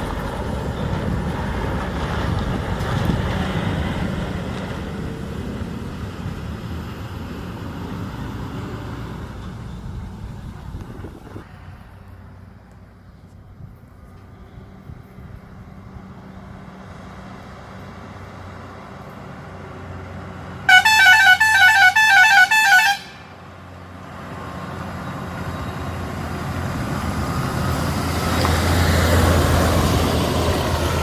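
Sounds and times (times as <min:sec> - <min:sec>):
heavy vehicle engine: 0:00.0 - 0:31.0
musical air horn: 0:20.7 - 0:23.4.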